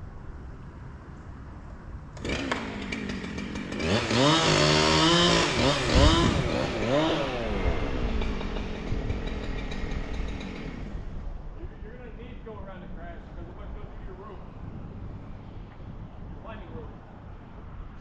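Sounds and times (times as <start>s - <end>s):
two-stroke chainsaw revving: 2.2s - 11.2s.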